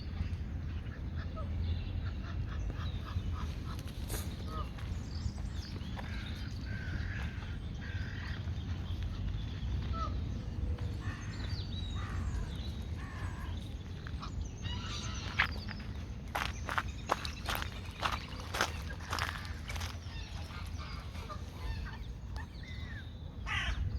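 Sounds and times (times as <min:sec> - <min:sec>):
steady low rumble: 0:00.0 - 0:23.9
harsh rasping bird calls: 0:11.0 - 0:23.8.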